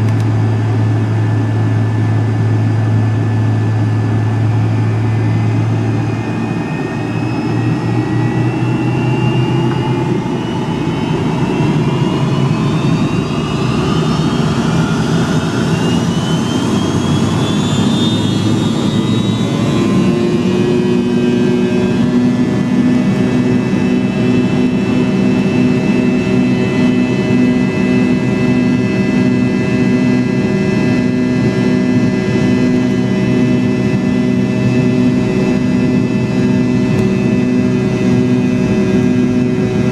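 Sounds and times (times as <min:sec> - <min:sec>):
low rumble: 0:00.0 - 0:17.2
jet engine spooling up: 0:00.0 - 0:39.9.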